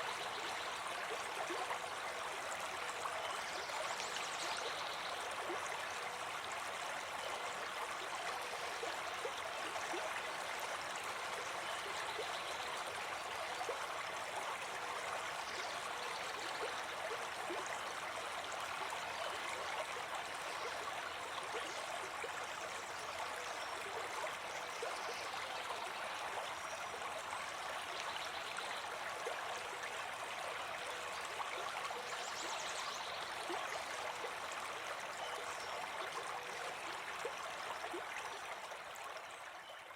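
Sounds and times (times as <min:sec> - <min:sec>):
brook babbling: 0:00.0 - 0:39.9.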